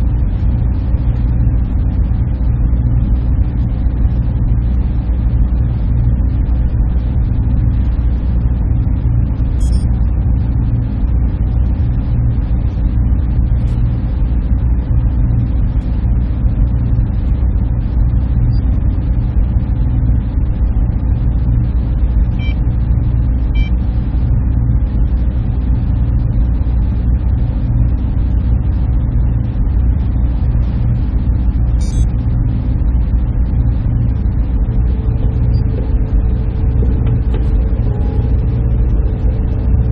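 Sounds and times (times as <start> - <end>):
cooling fans droning: 0.0 - 39.9
faint steady tone: 9.6 - 9.9, 31.8 - 32.1.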